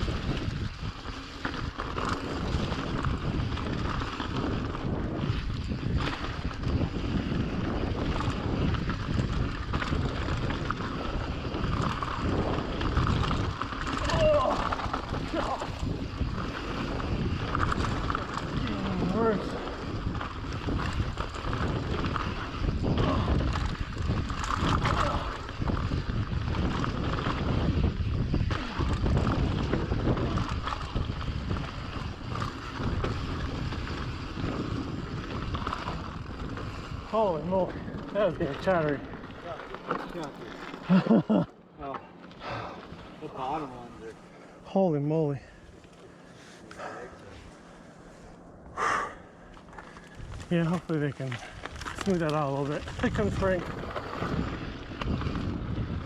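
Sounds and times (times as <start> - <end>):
bike rattling clicks and knocks: 0.0 - 43.8, 49.5 - 56.0
wind buffeting microphone: 0.0 - 56.0
tyres rumbling on dirt: 28.7 - 44.3, 49.6 - 56.0.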